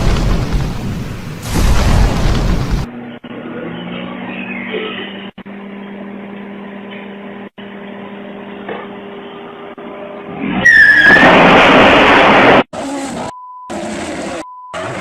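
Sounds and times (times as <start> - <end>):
falling squeal: 10.5 - 11.8.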